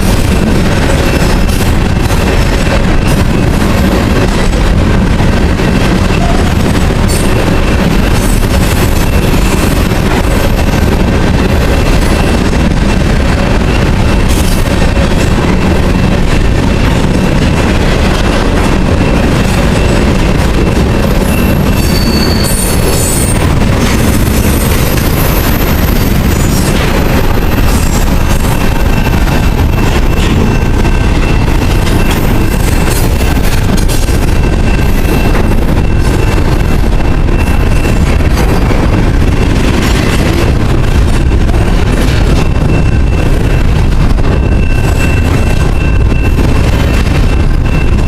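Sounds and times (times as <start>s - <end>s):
train wheels rumbling on rail: 0.0s - 48.0s
high-pitched wheel squeal: 20.7s - 23.5s.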